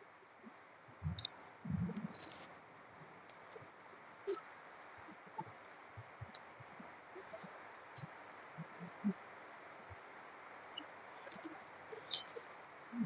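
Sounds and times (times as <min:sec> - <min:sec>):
soft low thumps: 0:01.0 - 0:02.1.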